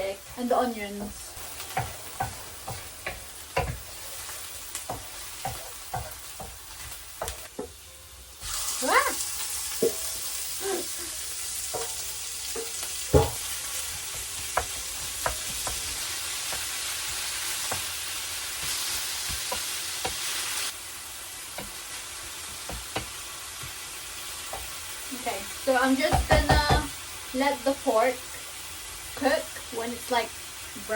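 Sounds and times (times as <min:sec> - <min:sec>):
meat sizzling in a pan: 0:00.0 - 0:30.9
spatula knocking against a pan: 0:12.6 - 0:13.5, 0:26.1 - 0:26.9.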